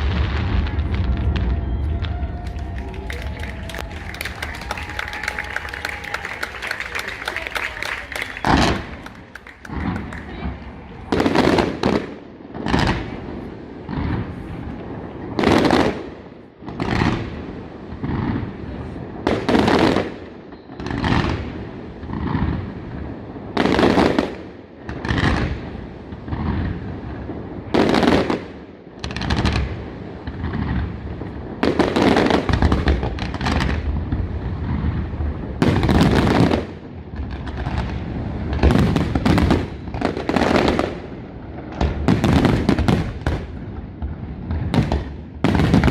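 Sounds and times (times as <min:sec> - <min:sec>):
rumbling echo and crackle: 0:00.0 - 0:05.0
fireworks bangs: 0:00.0 - 0:45.9.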